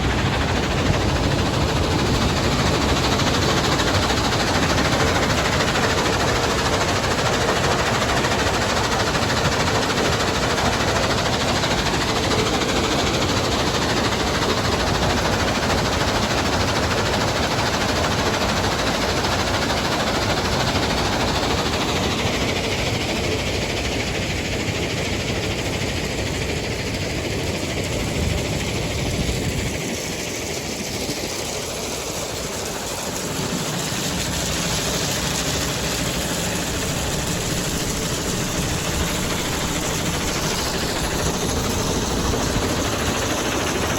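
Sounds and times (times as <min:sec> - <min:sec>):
rapid clatter of rock: 0:28.9 - 0:43.9
heavy diesel machinery rumbling: 0:31.8 - 0:43.9.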